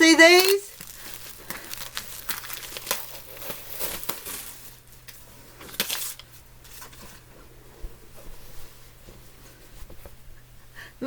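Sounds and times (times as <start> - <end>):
packaging and fabric crinkling: 0.0 - 7.3.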